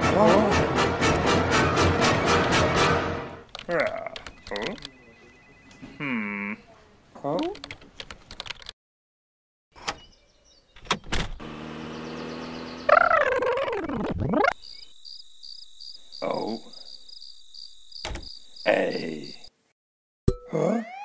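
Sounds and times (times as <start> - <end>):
sharp clicks: 3.5 - 5.0
car engine passing: 11.4 - 13.1
crickets chirping: 14.5 - 19.6.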